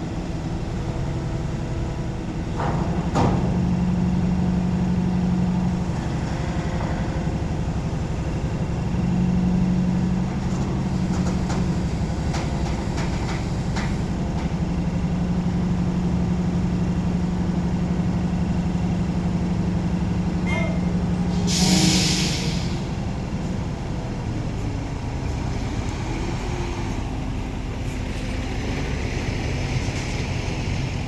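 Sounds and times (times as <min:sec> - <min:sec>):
truck diesel engine running: 0:00.0 - 0:31.0.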